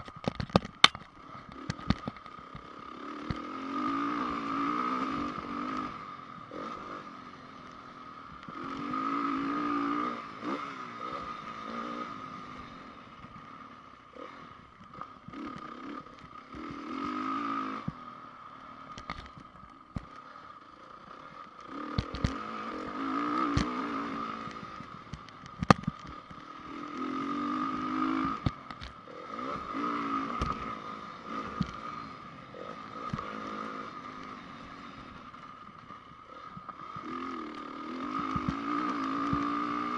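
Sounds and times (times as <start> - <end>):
motocross engine revving: 2.6 - 7.4, 8.5 - 12.9, 14.1 - 18.0, 21.2 - 25.2, 26.0 - 35.6, 36.2 - 39.9.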